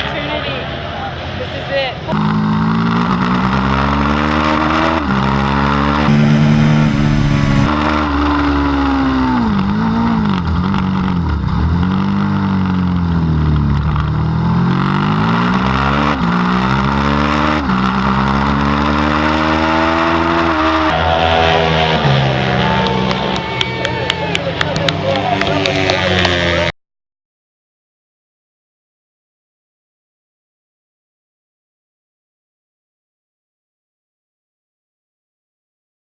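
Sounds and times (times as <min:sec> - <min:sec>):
racing motorcycle engine revving: 0:02.1 - 0:26.7.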